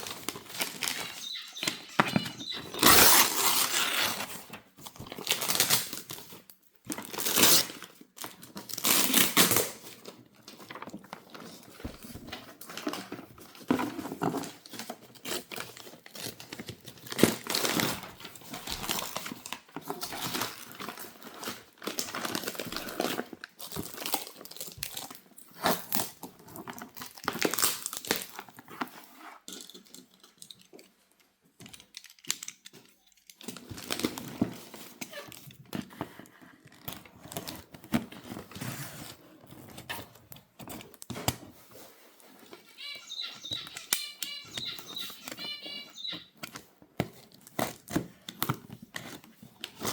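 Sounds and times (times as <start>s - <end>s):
wrapping crinkling and tearing: 0.0s - 1.6s, 2.4s - 31.0s, 31.6s - 43.0s, 46.4s - 49.9s
high chirps: 0.8s - 3.2s, 42.6s - 46.4s.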